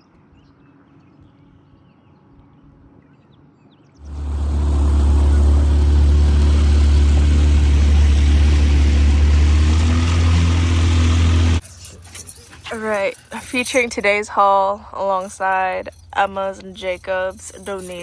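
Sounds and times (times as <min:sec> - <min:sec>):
boat motor running: 0:04.0 - 0:11.6.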